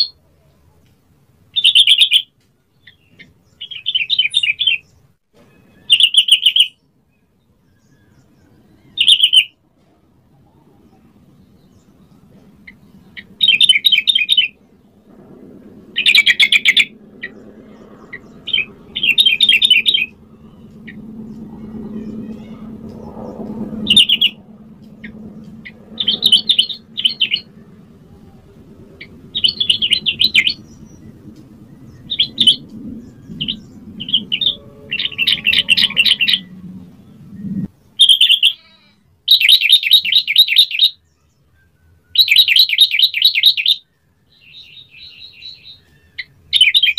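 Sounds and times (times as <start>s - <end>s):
faint low hum: 6.8s - 38.0s.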